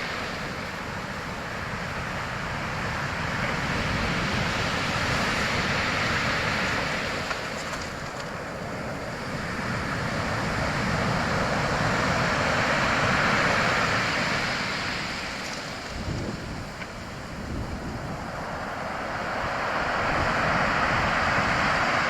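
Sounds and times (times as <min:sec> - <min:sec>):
sea waves breaking: 0:00.0 - 0:22.0.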